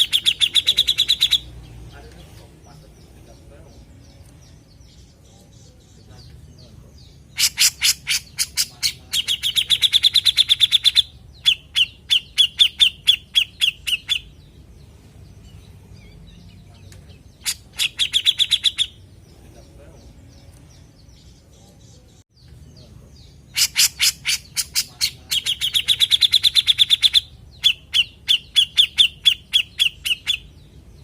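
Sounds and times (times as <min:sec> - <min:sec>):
bird calling in fast repeated notes: 0:00.0 - 0:01.6, 0:07.2 - 0:14.6, 0:17.3 - 0:19.2, 0:23.2 - 0:30.8
faint bird twittering: 0:00.0 - 0:31.0.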